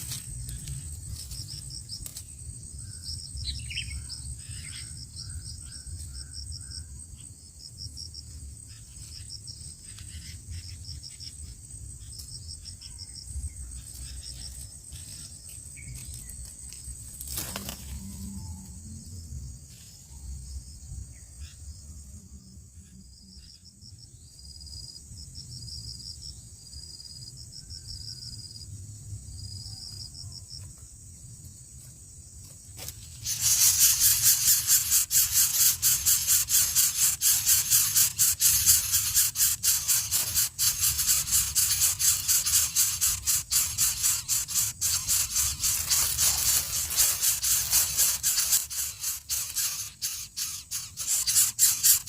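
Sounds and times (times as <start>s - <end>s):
faint high insect chirps: 0.0s - 52.0s
loud pulsing insect buzz: 32.8s - 52.0s.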